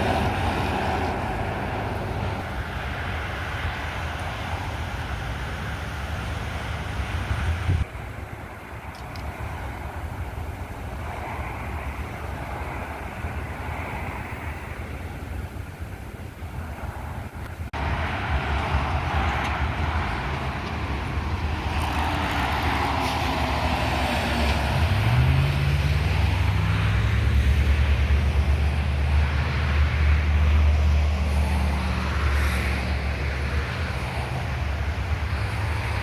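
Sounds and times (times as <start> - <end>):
truck engine rumbling past: 0.0 - 36.0.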